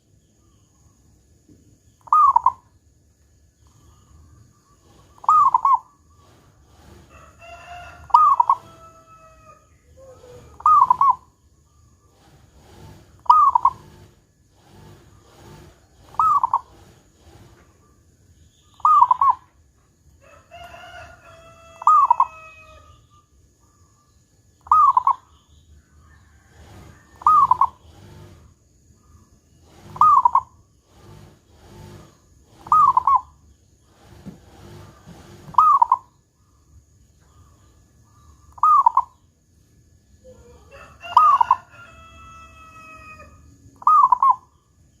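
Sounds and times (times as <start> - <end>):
dove cooing: 2.0 - 2.6, 4.8 - 7.3, 8.0 - 9.2, 9.8 - 11.3, 12.2 - 17.6, 18.8 - 19.5, 21.4 - 22.9, 24.6 - 25.2, 26.4 - 28.4, 29.7 - 33.4, 34.0 - 36.1, 38.1 - 39.2, 40.2 - 41.7, 43.2 - 44.5.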